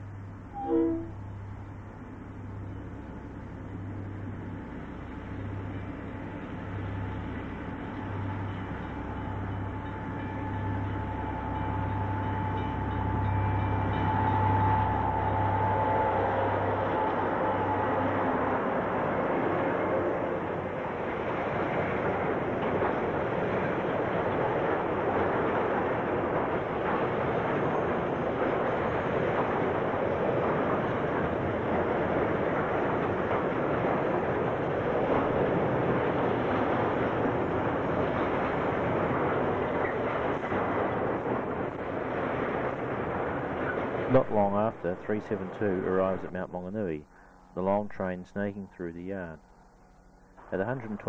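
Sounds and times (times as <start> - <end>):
freight train running: 0.0 - 51.0
faint high steady tone: 0.5 - 1.8.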